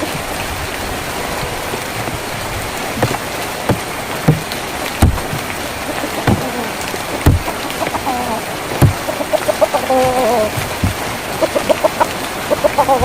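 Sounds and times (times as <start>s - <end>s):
rain on a tin roof: 0.0s - 13.0s
heavy drops thudding: 2.9s - 8.0s, 8.8s - 12.1s
chicken clucking: 5.1s - 13.0s.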